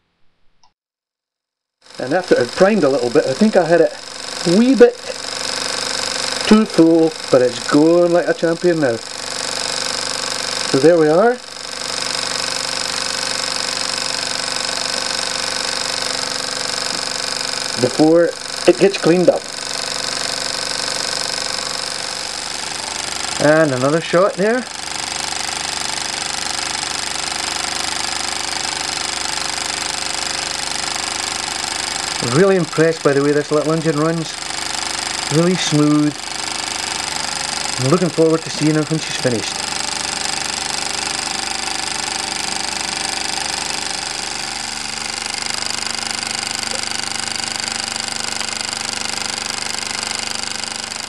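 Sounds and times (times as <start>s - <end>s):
toy steam engine running: 1.8s - 51.0s
person speaking: 2.0s - 5.2s, 6.4s - 9.0s, 10.7s - 11.4s, 17.8s - 19.5s, 23.4s - 24.7s, 32.2s - 34.4s, 35.2s - 36.2s, 37.7s - 39.7s.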